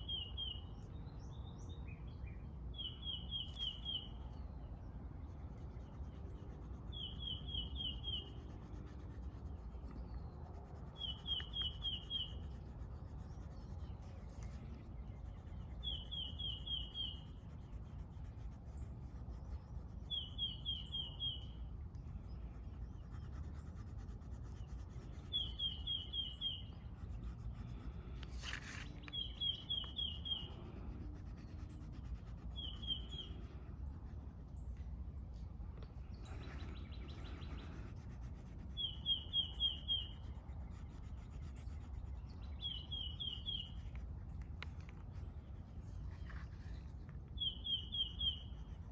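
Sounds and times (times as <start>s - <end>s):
songbird singing short phrase: 0.0s - 4.6s, 42.2s - 44.0s, 47.4s - 48.7s
low outdoor rumble: 0.6s - 48.9s.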